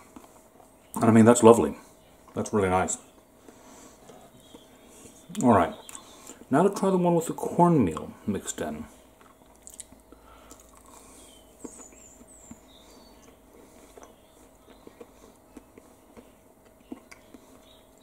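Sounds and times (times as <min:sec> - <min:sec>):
person chewing crunchy food: 0:09.0 - 0:18.0
mouth clicks: 0:09.2 - 0:18.0.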